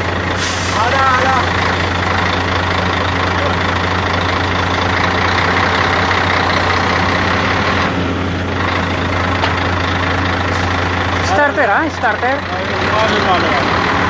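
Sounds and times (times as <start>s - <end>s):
vehicle engine idling: 0.0s - 14.0s
strong hiss: 0.4s - 1.0s.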